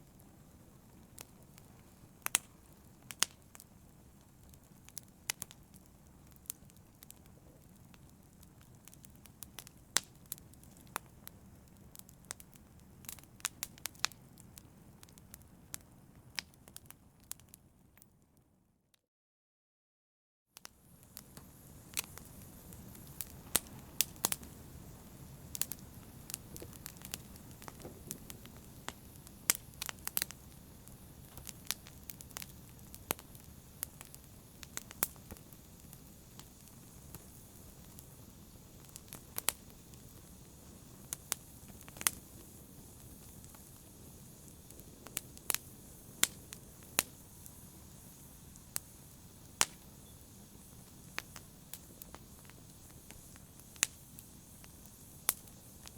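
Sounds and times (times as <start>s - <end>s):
wood fire crackling: 0.0s - 18.2s, 20.6s - 55.9s
flames rushing: 20.8s - 55.9s.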